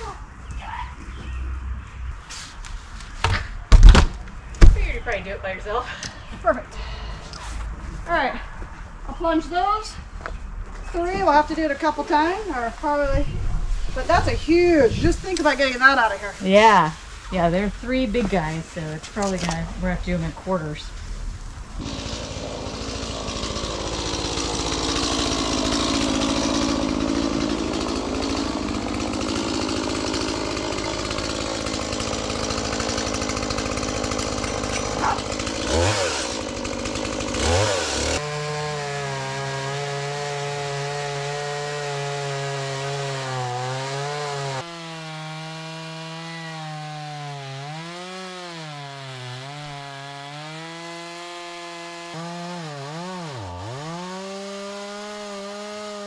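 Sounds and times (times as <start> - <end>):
chainsaw cutting wood: 16.4 - 17.0, 21.8 - 56.0.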